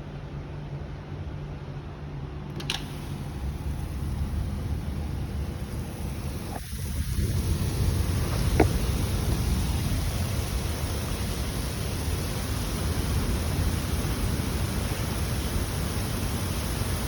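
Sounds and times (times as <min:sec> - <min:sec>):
sharp click: 0:02.5 - 0:03.2
rain: 0:03.0 - 0:17.0.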